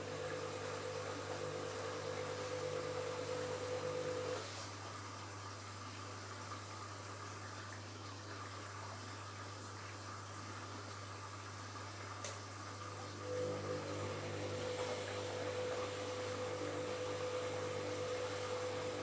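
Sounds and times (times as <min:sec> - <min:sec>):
washing machine motor whine: 0:00.0 - 0:05.0, 0:12.9 - 0:19.0.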